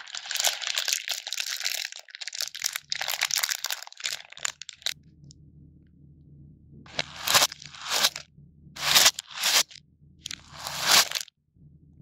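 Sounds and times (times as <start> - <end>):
foam beads rustling: 0.0 - 5.0, 6.9 - 8.2, 8.8 - 11.3
plastic wrappers crinkling: 0.0 - 5.0, 6.9 - 8.2, 8.8 - 11.3.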